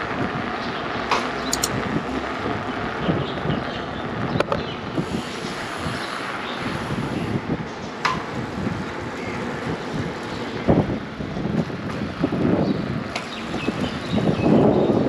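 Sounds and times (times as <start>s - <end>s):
bike tyres rolling on road: 0.0s - 15.0s
sharp click: 1.5s - 1.8s
wind buffeting microphone: 1.6s - 15.0s.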